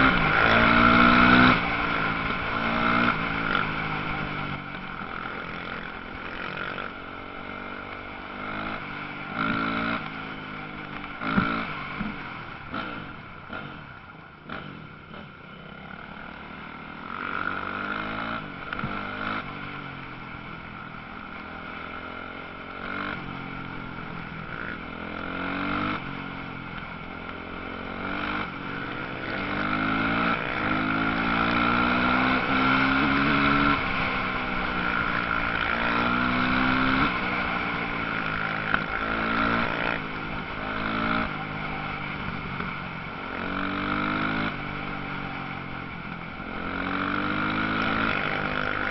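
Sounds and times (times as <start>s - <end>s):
motocross bike engines revving: 0.0s - 4.3s, 27.0s - 48.9s.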